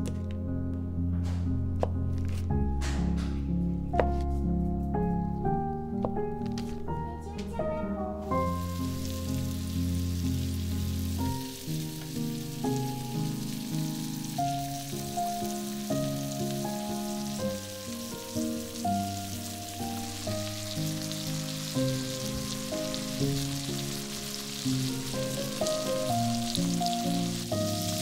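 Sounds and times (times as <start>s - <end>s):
soft background music: 0.0s - 28.0s
meat sizzling in hot oil: 8.3s - 28.0s.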